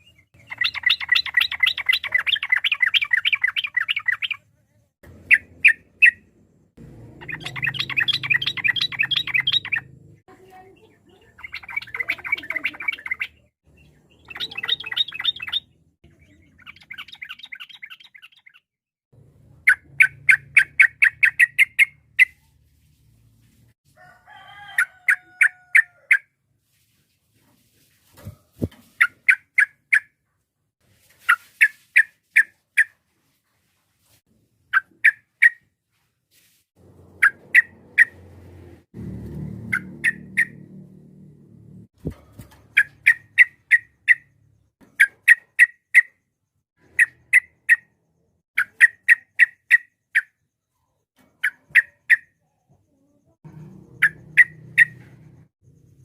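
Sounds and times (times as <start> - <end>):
bird chattering calls: 7.2 - 10.0, 11.1 - 13.5, 14.2 - 15.7, 39.7 - 40.7, 51.4 - 55.4.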